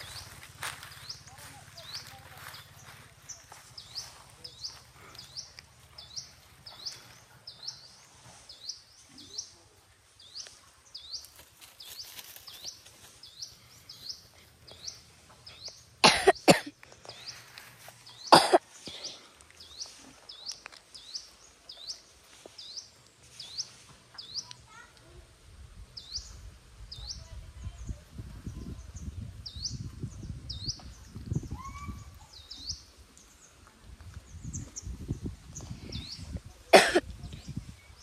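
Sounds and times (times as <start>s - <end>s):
person coughing: 16.0s - 16.7s, 18.3s - 18.6s, 36.7s - 37.1s.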